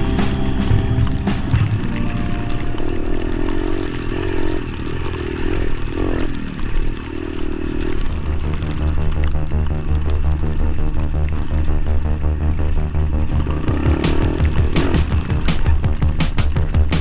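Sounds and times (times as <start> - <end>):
music: 0.0 - 3.5, 9.2 - 17.0
motorcycle engine running: 0.0 - 17.0.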